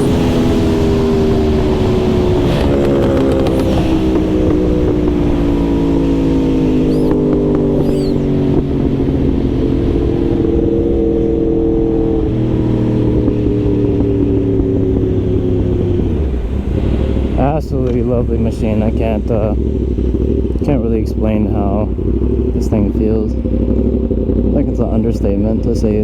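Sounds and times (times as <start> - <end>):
wind rushing: 0.0 - 20.6
motorcycle engine running: 0.0 - 26.0.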